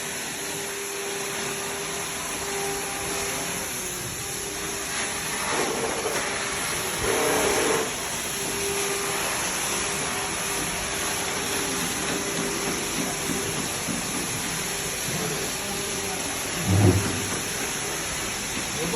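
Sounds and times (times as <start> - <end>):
machinery hissing: 12.5 - 18.9.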